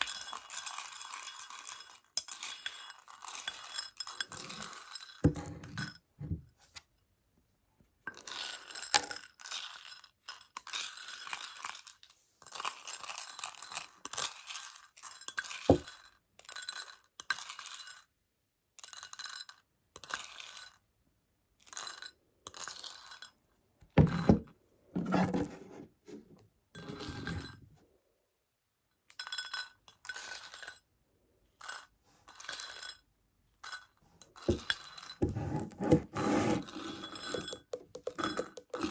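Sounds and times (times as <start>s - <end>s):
candies rattling inside container: 36.2s - 38.9s
tapping on plastic container: 37.3s - 38.9s.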